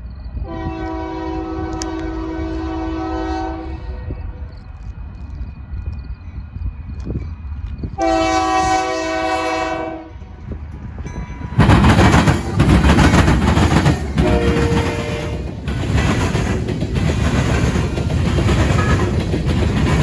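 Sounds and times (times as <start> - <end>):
train engine and wheels on rails: 0.0 - 20.0
locomotive air horn: 0.4 - 4.2, 8.0 - 10.3, 14.2 - 15.5.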